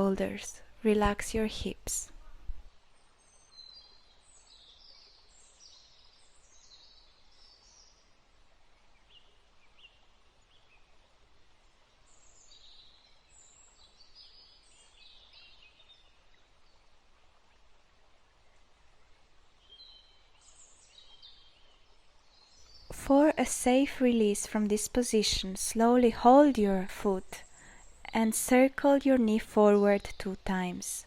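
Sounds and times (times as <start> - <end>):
soft background hiss: 0.0 - 31.0
faint bird chirps and twitters: 1.0 - 11.0, 19.6 - 31.0.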